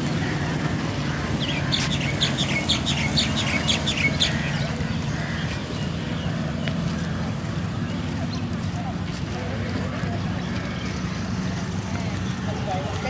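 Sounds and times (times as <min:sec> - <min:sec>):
bird chirping: 0:01.4 - 0:06.4.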